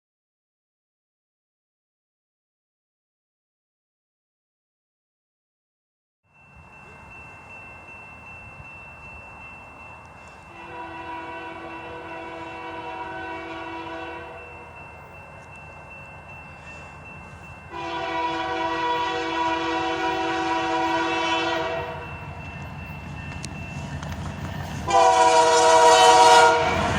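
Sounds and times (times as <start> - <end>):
train rumbling: 6.4 - 26.9
locomotive air horn blasts: 10.5 - 14.5, 17.7 - 22.0, 24.9 - 26.9.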